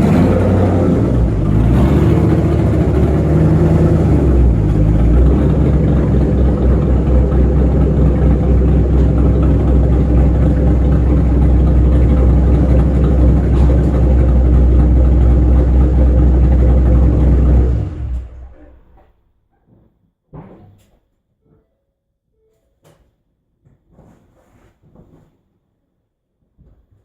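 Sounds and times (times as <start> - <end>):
car engine idling: 0.0 - 19.2.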